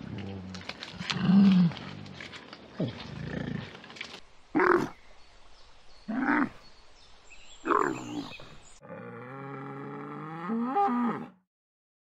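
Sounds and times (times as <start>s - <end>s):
camel calling: 0.2s - 5.0s, 7.6s - 11.3s
cow mooing: 8.8s - 11.4s.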